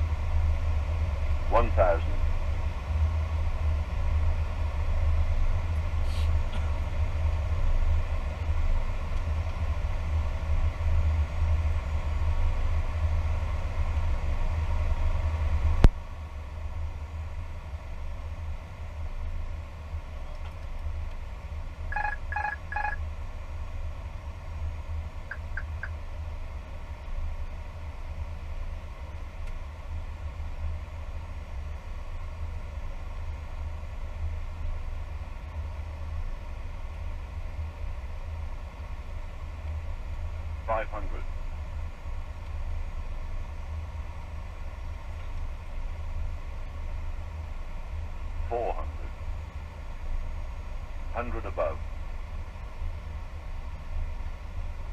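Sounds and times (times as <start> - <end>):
aircraft cockpit rumble: 0.0 - 54.9
short beeps: 21.9 - 23.0.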